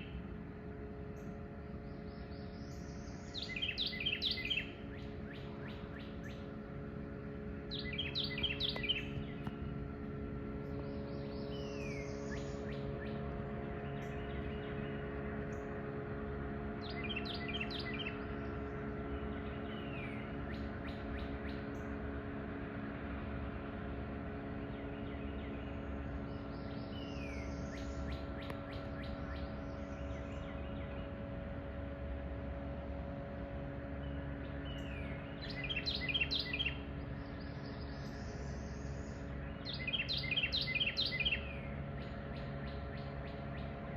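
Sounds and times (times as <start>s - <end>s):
low diesel engine drone: 0.0s - 43.9s
birds chirping and calling: 1.9s - 6.5s, 7.7s - 9.6s, 16.8s - 21.9s, 34.0s - 43.9s.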